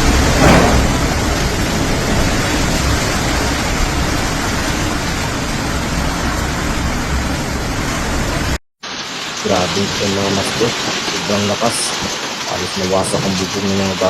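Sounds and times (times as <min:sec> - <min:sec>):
wind gusts buffeting microphone: 0:00.0 - 0:07.6
wind and rain rushing: 0:00.0 - 0:14.0.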